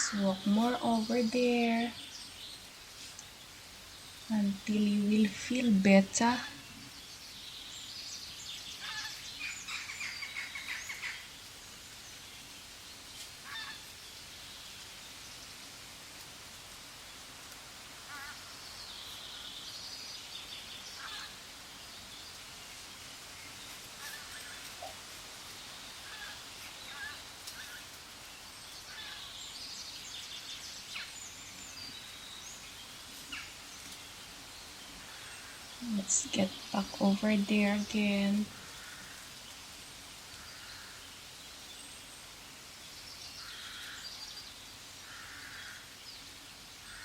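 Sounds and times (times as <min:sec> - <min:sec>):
bird chirps and calls: 0:00.0 - 0:02.6, 0:35.2 - 0:38.5
steady background hiss: 0:00.0 - 0:47.0.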